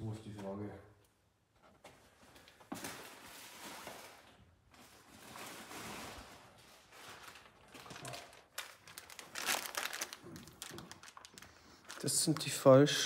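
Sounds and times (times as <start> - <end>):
hands rummaging through plastic clips: 7.2 - 12.6.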